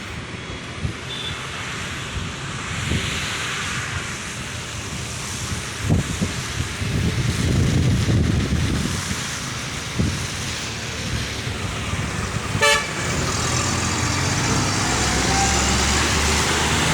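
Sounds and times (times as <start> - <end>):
road traffic: 0.0 - 16.9
rain hissing: 1.4 - 16.9
wind buffeting microphone: 2.1 - 16.9
short car horn beep: 12.6 - 13.0.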